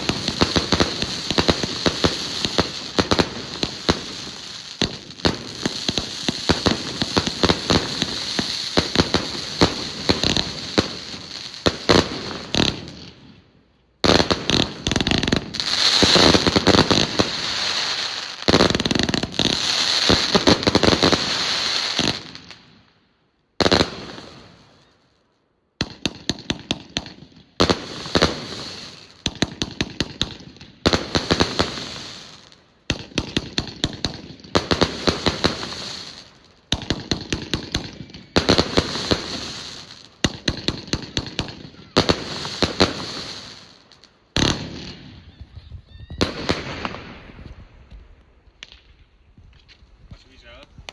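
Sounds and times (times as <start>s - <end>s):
fireworks hiss: 0.0s - 12.6s, 14.6s - 22.4s
fireworks bangs and crackles: 0.0s - 13.4s, 14.0s - 22.9s, 23.5s - 25.0s, 25.7s - 50.9s.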